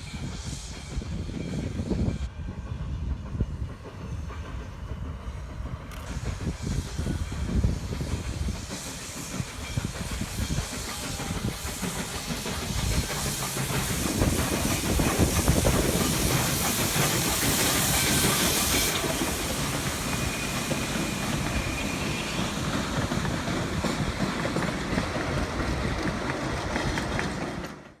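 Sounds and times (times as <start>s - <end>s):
steam hiss: 0.0s - 27.7s
steam locomotive rumbling on rails: 0.0s - 28.0s.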